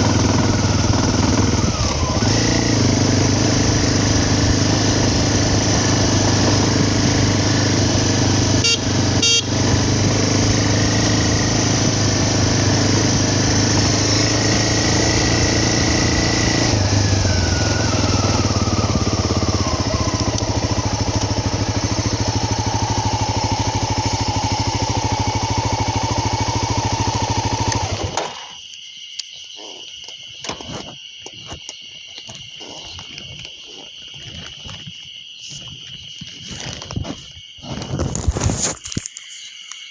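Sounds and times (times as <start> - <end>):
vehicle engine running: 0.0 - 28.2
high insect drone: 0.2 - 39.9
wind noise: 32.3 - 39.1.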